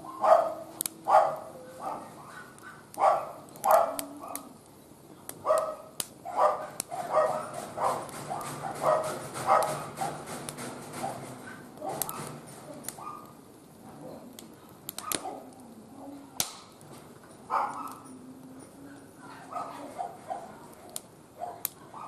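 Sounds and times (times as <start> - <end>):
dog barking: 0.0 - 4.5, 5.4 - 10.2, 11.0 - 12.4, 13.0 - 13.4, 15.0 - 16.2, 17.5 - 18.1, 19.0 - 20.6, 21.4 - 22.0
wood fire crackling: 0.0 - 22.0.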